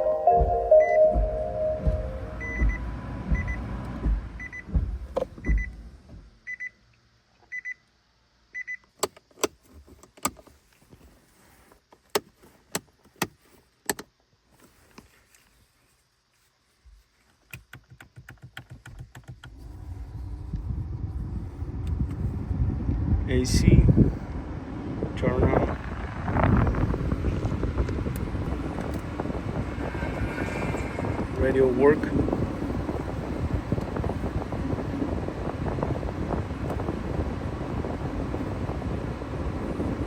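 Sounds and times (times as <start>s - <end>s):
electronic chime beeping: 0.0s - 2.8s
low rumble: 0.0s - 5.7s, 19.6s - 27.6s, 28.2s - 35.1s.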